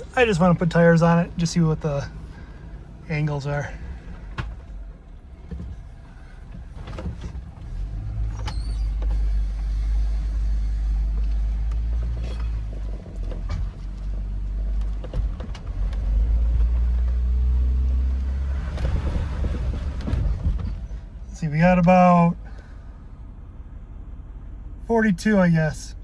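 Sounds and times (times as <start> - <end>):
vehicle engine pulling at low revs: 0.0 - 26.0.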